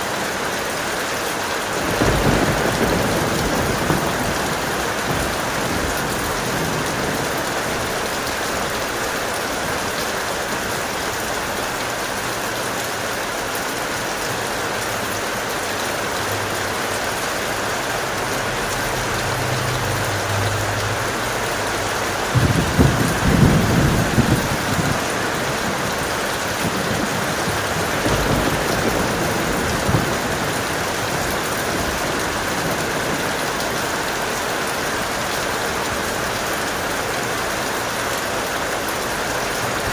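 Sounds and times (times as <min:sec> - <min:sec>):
heavy rain: 0:00.0 - 0:39.9
thunder rumbling: 0:01.7 - 0:11.3, 0:16.1 - 0:34.3.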